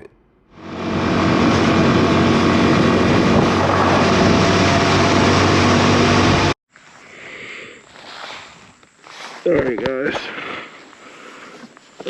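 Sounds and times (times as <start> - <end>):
motorcycle engine hum: 0.6 - 6.6
wind rushing on microphone: 0.7 - 6.5.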